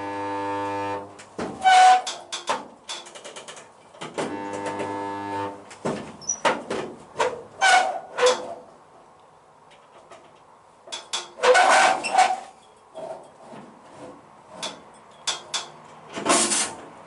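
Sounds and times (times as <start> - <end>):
metal knocking and clanking: 1.4 - 4.3, 5.7 - 8.6, 9.8 - 17.0.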